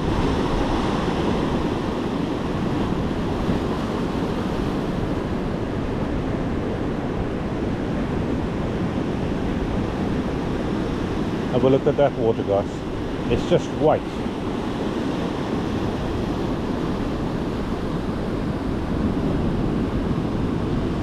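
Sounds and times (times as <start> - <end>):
surf breaking on a beach: 0.0 - 21.0
wind buffeting microphone: 0.0 - 21.0.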